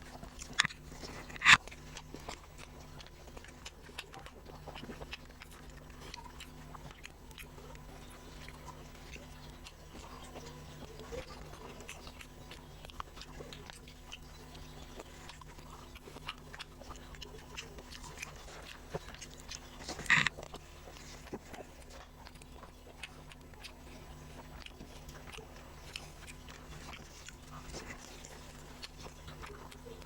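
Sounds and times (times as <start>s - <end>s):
low steady hum: 0.0s - 30.0s
person chewing food: 0.0s - 30.0s.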